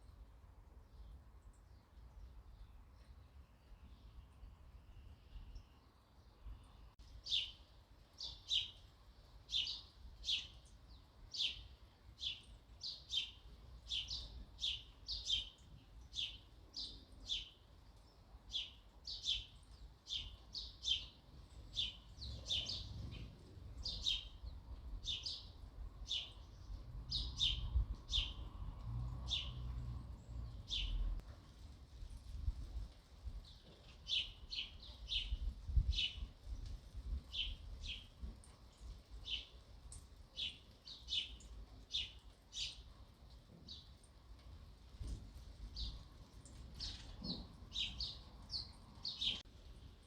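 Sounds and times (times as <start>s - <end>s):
sparrow chirping: 11.4s - 17.6s, 18.5s - 28.6s, 29.3s - 29.8s, 30.4s - 31.2s, 46.8s - 49.4s.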